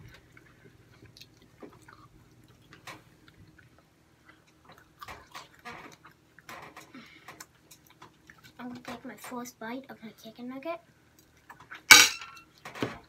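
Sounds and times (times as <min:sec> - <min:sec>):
people chewing food: 0:00.0 - 0:09.2, 0:10.9 - 0:11.9.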